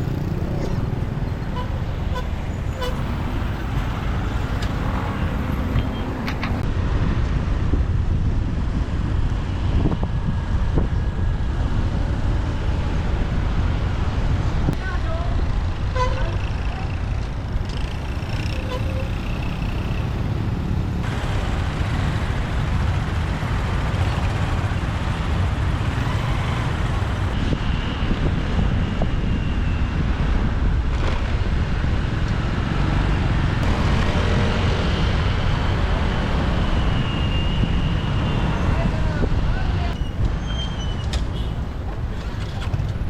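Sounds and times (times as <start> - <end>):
motorbike engine rumble: 0.0 - 6.7, 17.1 - 27.4
traffic noise: 0.0 - 43.0.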